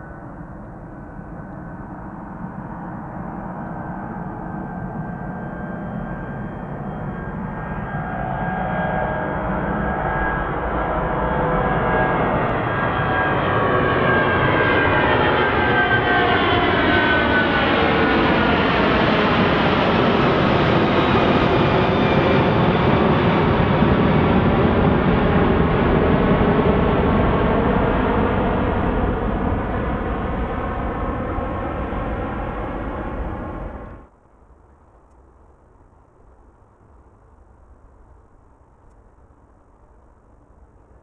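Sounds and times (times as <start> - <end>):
jet engines whining: 4.8 - 34.1.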